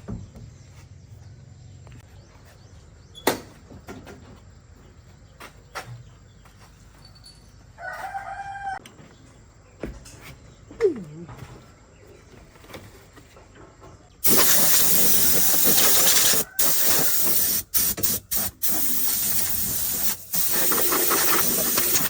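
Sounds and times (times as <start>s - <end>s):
rooster crowing: 7.8s - 8.8s, 16.1s - 17.2s.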